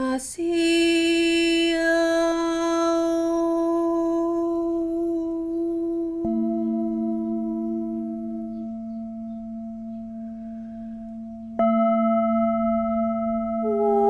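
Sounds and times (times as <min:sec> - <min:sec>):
singing bowl ringing: 0:02.3 - 0:14.0.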